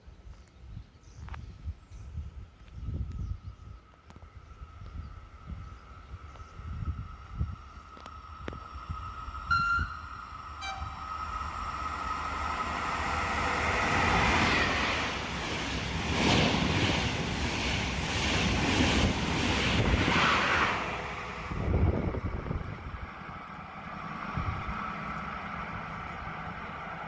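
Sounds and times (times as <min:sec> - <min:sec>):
train passing: 0:03.6 - 0:27.0
train horn toots: 0:09.5 - 0:11.3.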